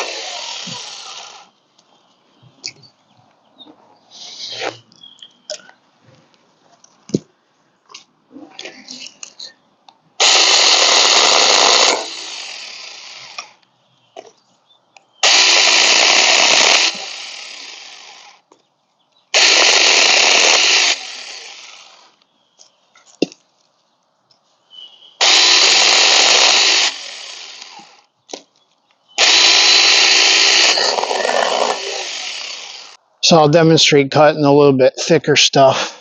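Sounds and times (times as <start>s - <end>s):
chainsaw cutting branches: 0.0s - 1.5s, 10.2s - 13.6s, 15.2s - 18.5s, 19.3s - 22.2s, 25.2s - 28.1s, 29.2s - 33.0s.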